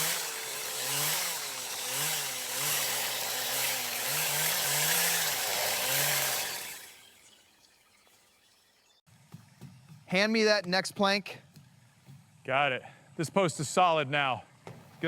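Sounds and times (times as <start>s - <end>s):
power saw cutting: 0.0s - 7.4s.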